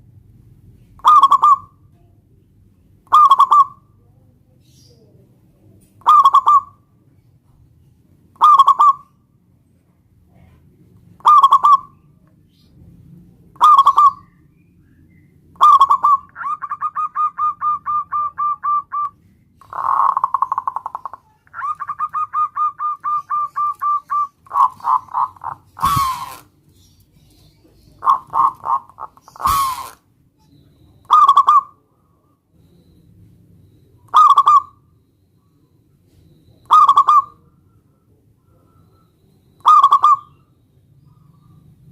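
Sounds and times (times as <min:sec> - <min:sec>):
dove cooing: 0:00.9 - 0:01.8, 0:03.1 - 0:04.1, 0:06.0 - 0:06.8, 0:08.4 - 0:09.0, 0:10.4 - 0:12.0, 0:13.6 - 0:14.3, 0:15.6 - 0:30.0, 0:30.7 - 0:31.9, 0:34.0 - 0:34.8, 0:36.5 - 0:40.5.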